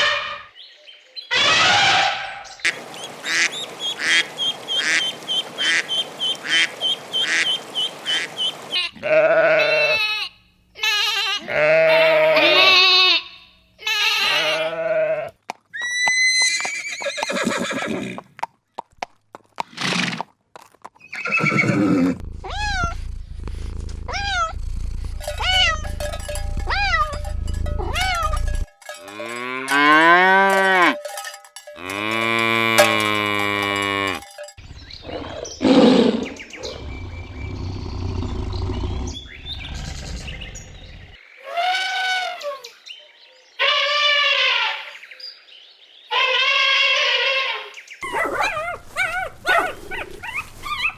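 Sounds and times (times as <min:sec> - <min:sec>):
rising and falling animal calls: 0:01.3 - 0:13.3, 0:21.2 - 0:23.1, 0:24.0 - 0:28.7, 0:31.8 - 0:42.3, 0:48.0 - 0:50.9
farm animals bleating and whinnying: 0:01.3 - 0:18.2, 0:21.1 - 0:23.1, 0:23.9 - 0:31.1, 0:31.8 - 0:39.9, 0:43.6 - 0:45.0, 0:46.1 - 0:50.9
rumbling noise: 0:22.1 - 0:28.7
low hum: 0:22.2 - 0:28.7.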